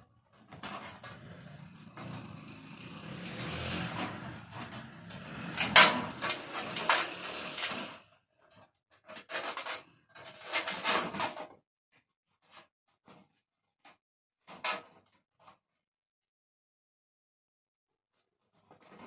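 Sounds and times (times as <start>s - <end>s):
sharp clicks and knocks: 3.9s - 7.9s.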